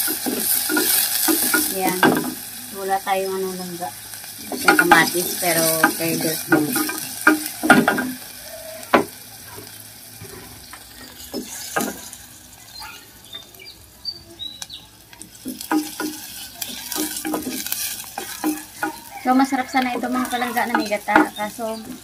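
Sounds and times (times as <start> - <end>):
wooden spatula knocking on pot: 0.0 - 2.4, 4.4 - 8.2, 8.9 - 9.2, 15.4 - 22.0
garlic sizzling in a pot: 0.0 - 22.0.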